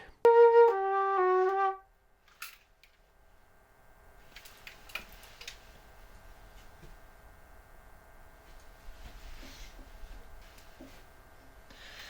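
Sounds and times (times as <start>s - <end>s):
faint cooling fan whine: 0.0s - 12.0s
flute falling notes: 0.3s - 1.9s.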